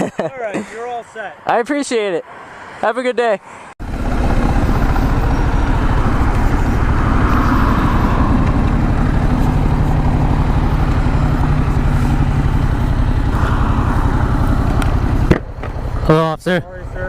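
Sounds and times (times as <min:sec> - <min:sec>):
motorcycle engine rumbling: 0:03.8 - 0:17.0.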